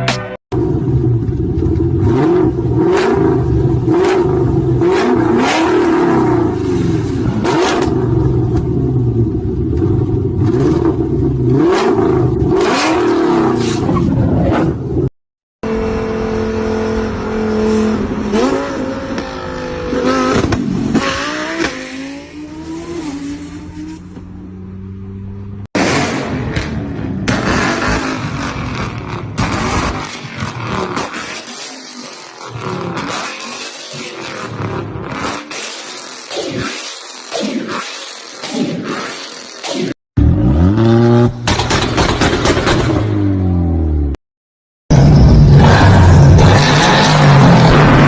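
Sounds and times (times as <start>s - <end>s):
engine revving: 1.8s - 8.6s, 10.3s - 14.8s, 15.6s - 43.9s, 44.9s - 48.0s
exhaust bangs and crackles: 25.8s - 33.4s, 41.2s - 43.4s.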